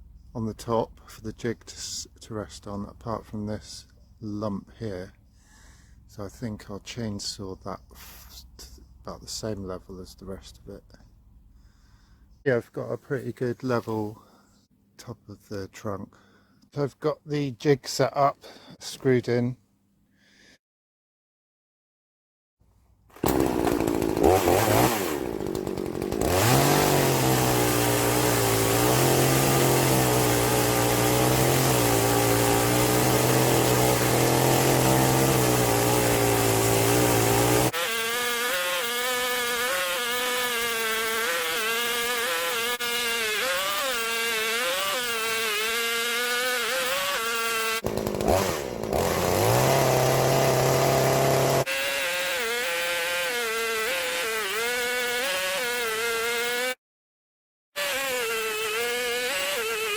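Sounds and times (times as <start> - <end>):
chainsaw cutting wood: 23.1 - 56.8, 57.8 - 59.9.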